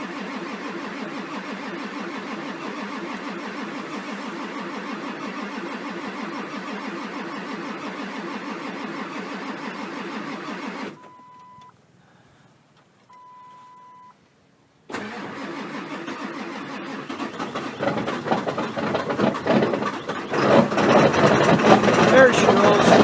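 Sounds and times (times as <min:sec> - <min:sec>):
engine firing unevenly: 0:00.0 - 0:11.2, 0:14.9 - 0:23.0
diesel engine starter cranking: 0:00.0 - 0:11.7, 0:14.9 - 0:23.0
short steady beeps: 0:11.0 - 0:11.7, 0:13.1 - 0:14.2.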